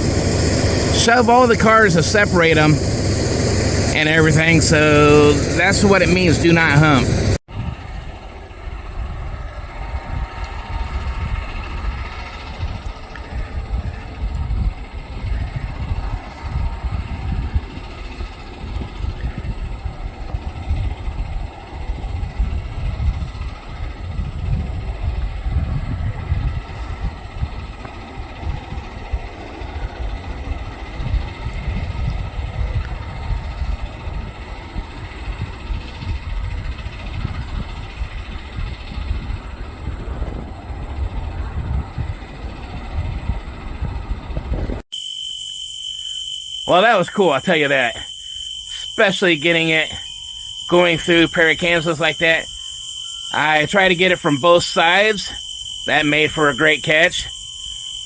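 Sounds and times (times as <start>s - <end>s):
diesel engines rumbling: 0.0s - 20.0s, 46.7s - 57.8s.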